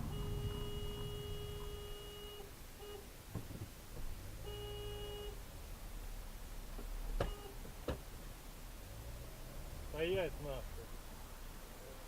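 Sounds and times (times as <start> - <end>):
car horn honking: 0.0 - 3.5, 4.3 - 5.4, 7.1 - 8.0.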